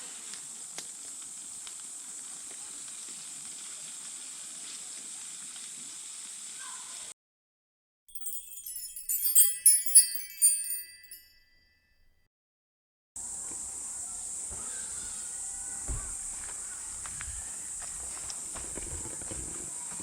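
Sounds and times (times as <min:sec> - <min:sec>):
bell-like chimes jingle: 0:08.1 - 0:11.9.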